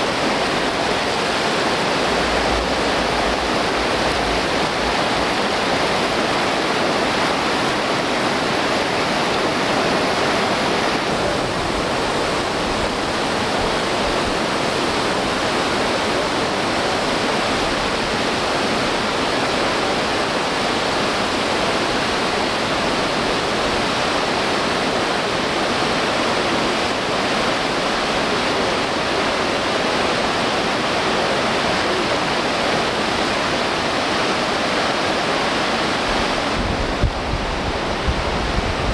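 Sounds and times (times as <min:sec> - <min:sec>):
whitewater rapids rushing: 0:00.0 - 0:38.9.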